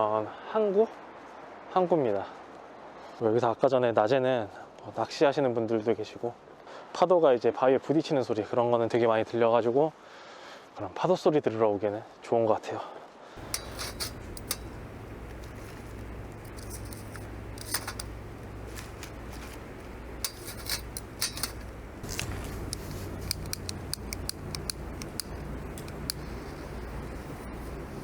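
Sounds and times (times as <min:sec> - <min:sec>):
wood fire crackling and popping: 0:13.4 - 0:28.0.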